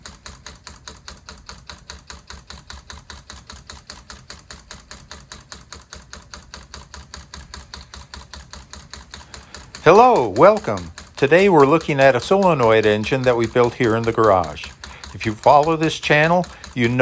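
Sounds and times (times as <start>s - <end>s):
solenoid engine clicking: 0.0s - 17.0s.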